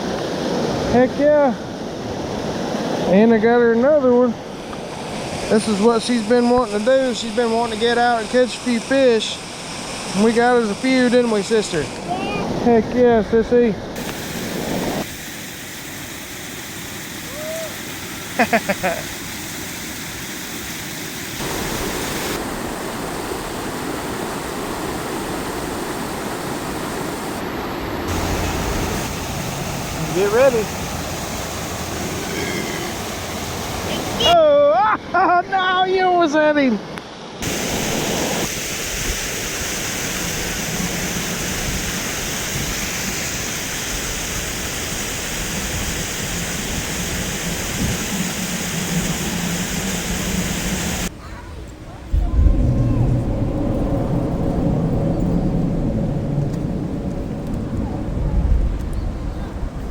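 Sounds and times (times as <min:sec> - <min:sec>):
river water rushing: 0:17.2 - 0:34.4, 0:37.1 - 0:51.1
fast-flowing river water: 0:28.1 - 0:34.4.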